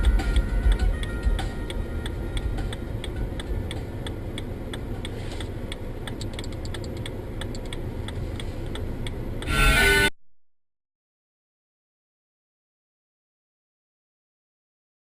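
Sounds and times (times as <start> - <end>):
regular ticking clicks: 0.0 - 9.5
car rumble from inside cabin: 0.0 - 10.1.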